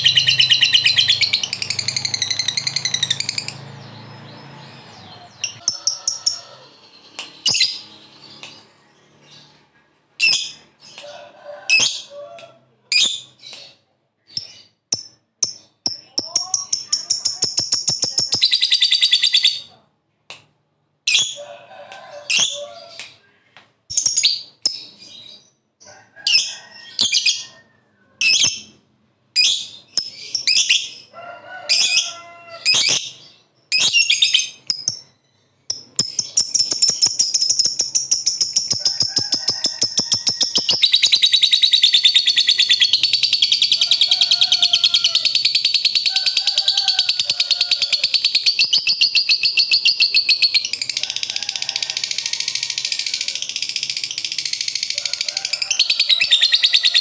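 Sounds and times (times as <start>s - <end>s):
bird chattering trills: 0.0s - 4.0s, 4.7s - 8.6s, 14.4s - 19.6s, 35.7s - 51.0s.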